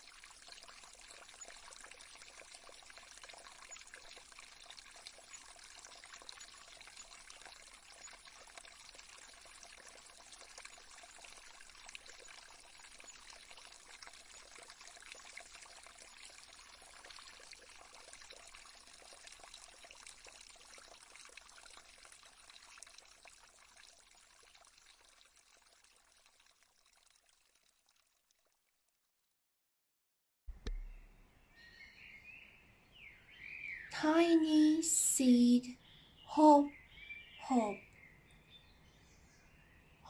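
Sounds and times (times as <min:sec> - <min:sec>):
water trickling: 0:00.0 - 0:28.8.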